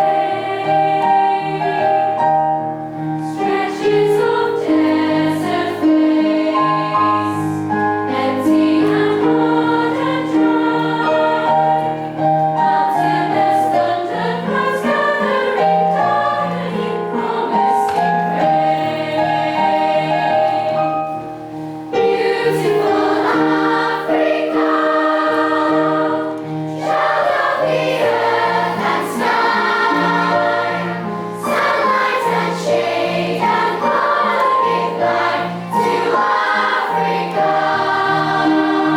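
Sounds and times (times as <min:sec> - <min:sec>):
choir singing in harmony: 0:00.0 - 0:38.9.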